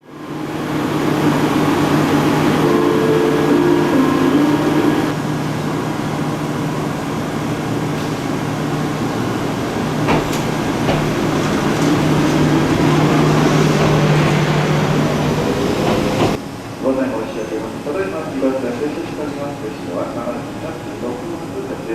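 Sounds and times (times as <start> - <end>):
higher tones: 0.0 - 5.2
electric railcar hum and rumble: 0.0 - 16.8.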